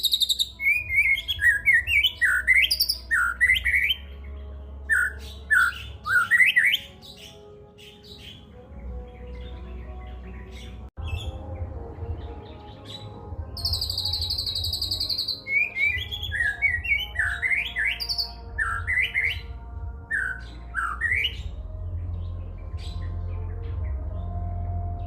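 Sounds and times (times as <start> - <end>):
songbird trilling and whistling: 0.0 - 4.2, 4.9 - 8.5, 12.6 - 19.5, 20.1 - 21.6.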